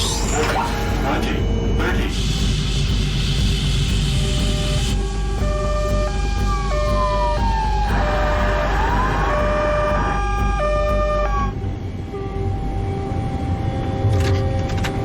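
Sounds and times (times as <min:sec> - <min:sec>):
steady tone: 0:00.0 - 0:14.2
low rumble: 0:00.0 - 0:15.0
emergency vehicle sirens: 0:05.4 - 0:11.6.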